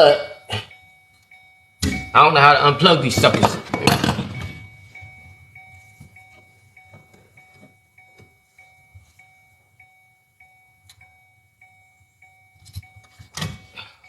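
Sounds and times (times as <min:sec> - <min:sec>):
car warning chime ticking: 0:00.0 - 0:14.0
hands clicking wiring plugs: 0:01.1 - 0:02.3, 0:12.6 - 0:13.8.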